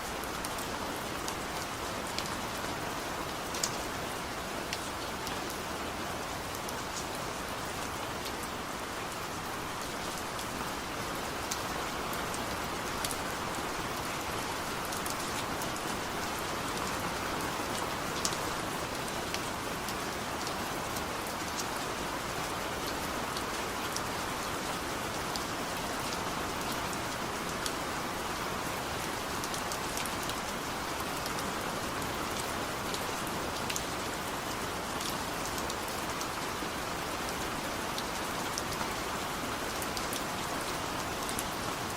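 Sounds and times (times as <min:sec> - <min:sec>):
rain falling: 0:00.0 - 0:41.9
raindrops ticking on a surface: 0:03.3 - 0:03.9, 0:04.6 - 0:07.2, 0:07.8 - 0:41.9.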